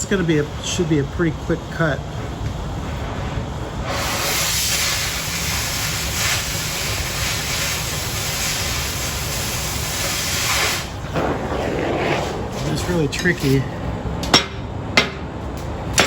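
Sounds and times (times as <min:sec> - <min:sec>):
low rumble of torch flame: 0:00.0 - 0:16.0
cutting torch oxygen jet hissing: 0:03.8 - 0:13.9.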